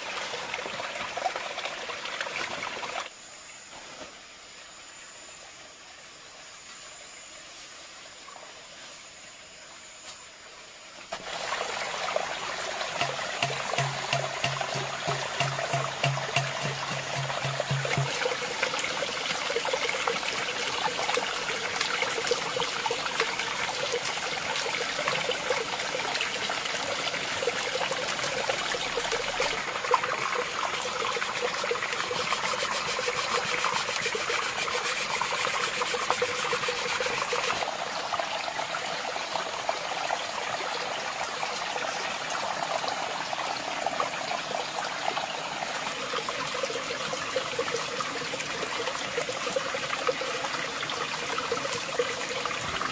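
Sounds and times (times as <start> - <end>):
water trickling: 11.2 - 52.9.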